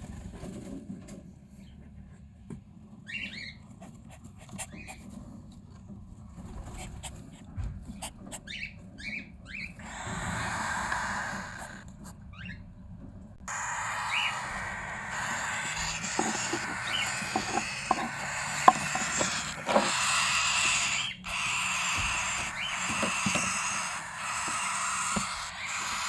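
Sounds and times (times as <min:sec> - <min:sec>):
birds chirping faintly: 0:13.4 - 0:26.0
scratchy hiss: 0:13.5 - 0:20.8
clicks and taps: 0:15.7 - 0:19.9.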